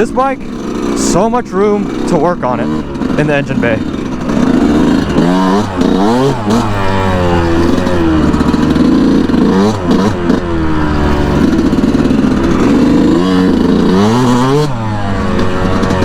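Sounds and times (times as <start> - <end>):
two-stroke engine revving: 0.0 - 16.0.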